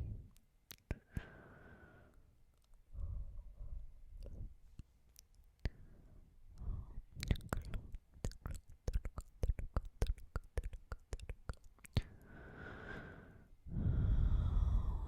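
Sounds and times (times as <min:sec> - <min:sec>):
wet mouth clicks: 0:00.3 - 0:01.3, 0:02.5 - 0:02.9, 0:04.2 - 0:05.8, 0:06.6 - 0:12.2.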